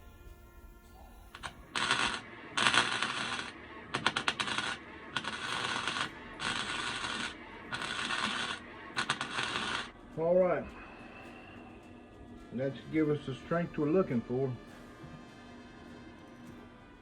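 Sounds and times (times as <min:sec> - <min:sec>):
welder crackling bursts: 0:01.0 - 0:10.7.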